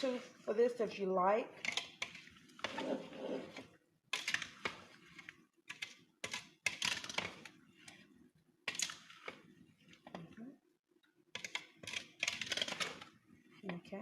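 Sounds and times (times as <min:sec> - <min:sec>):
utensil scraping a bowl: 0:01.6 - 0:10.2.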